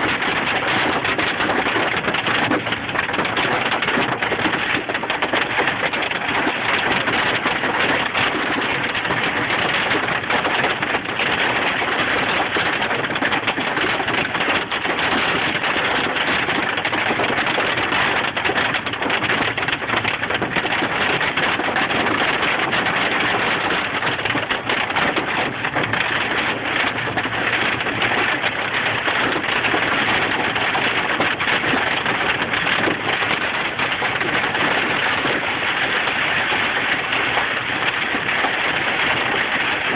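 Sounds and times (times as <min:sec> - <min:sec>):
hail and rain on a vehicle: 0:00.0 - 0:39.9.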